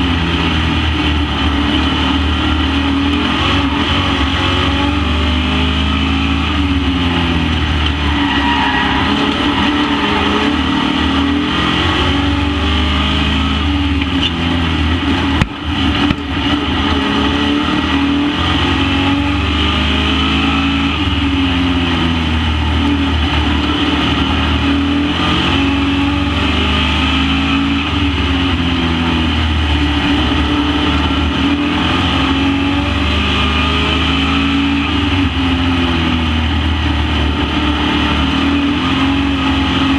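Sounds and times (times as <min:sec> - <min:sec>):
race truck engines revving: 0:00.0 - 0:39.9.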